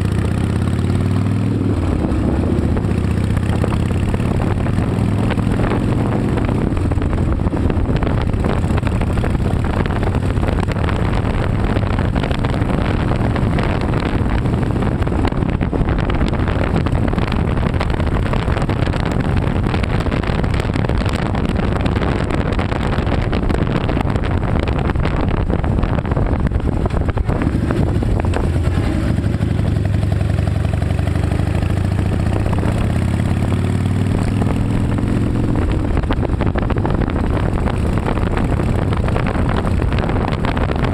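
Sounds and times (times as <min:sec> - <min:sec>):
motorcycle engine running: 0:00.0 - 0:40.9
rushing wind noise: 0:00.0 - 0:40.9.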